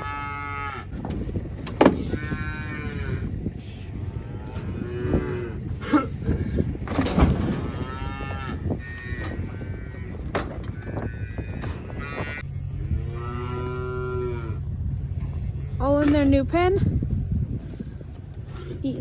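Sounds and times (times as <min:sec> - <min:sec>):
calves bawling: 0:00.9 - 0:12.4
sharp knocks: 0:01.0 - 0:03.8.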